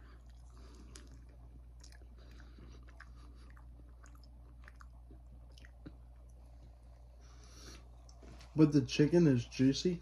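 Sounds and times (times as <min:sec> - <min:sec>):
person chewing with mouth clicks: 0:00.0 - 0:06.4
steady low hum: 0:00.0 - 0:10.0.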